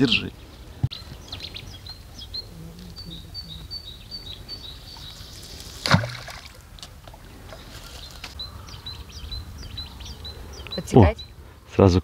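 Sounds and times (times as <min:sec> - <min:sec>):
small bird chirping: 0:00.0 - 0:05.6, 0:07.5 - 0:11.4.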